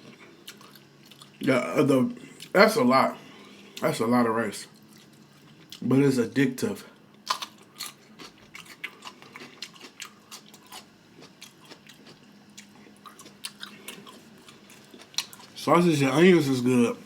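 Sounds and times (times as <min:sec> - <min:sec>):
person chewing food: 0:00.0 - 0:01.4, 0:04.7 - 0:05.8, 0:07.1 - 0:15.6.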